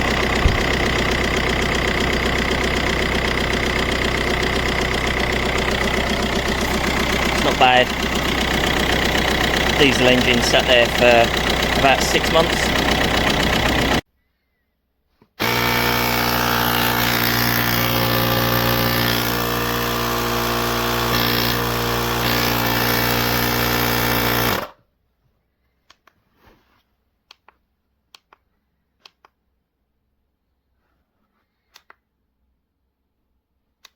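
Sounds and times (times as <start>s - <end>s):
air compressor rattling buzz: 0.0s - 14.0s, 15.4s - 24.8s.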